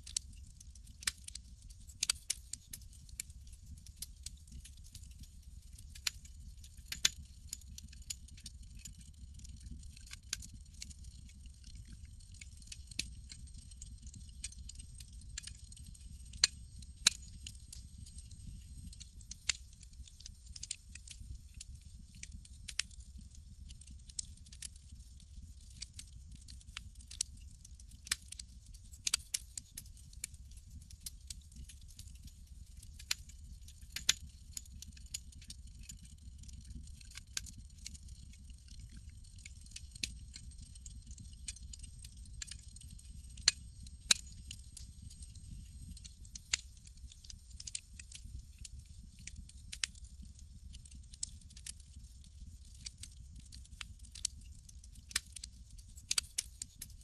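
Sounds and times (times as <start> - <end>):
campfire crackling: 2.0 - 4.1, 6.8 - 22.9, 56.0 - 56.4.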